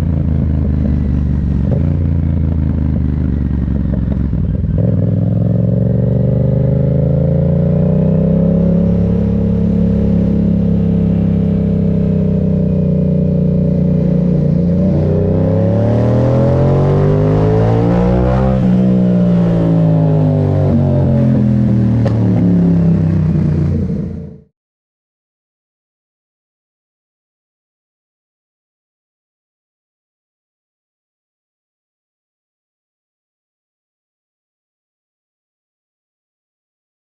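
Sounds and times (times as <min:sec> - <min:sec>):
motorcycle engine revving: 0:00.0 - 0:24.5.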